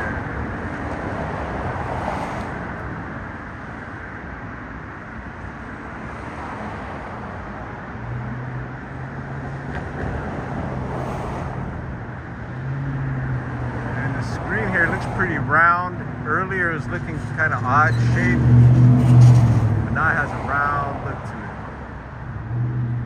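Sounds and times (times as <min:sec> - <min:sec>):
road traffic noise: 0:00.0 - 0:23.0.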